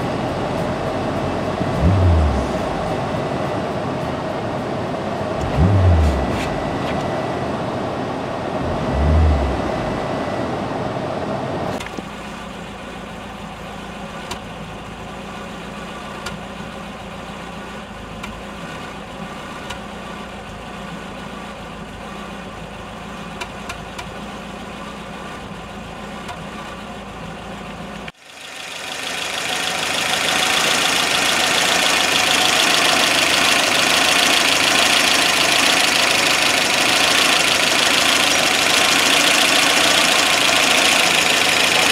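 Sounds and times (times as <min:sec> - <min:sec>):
loud rushing noise: 0:00.0 - 0:11.8
car engine idling: 0:00.0 - 0:41.9.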